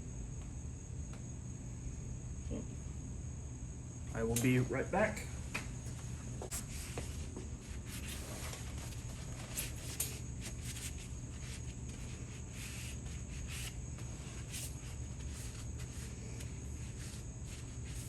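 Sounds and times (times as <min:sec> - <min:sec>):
low background hum: 0:00.0 - 0:18.0
thin high whine: 0:04.1 - 0:18.0.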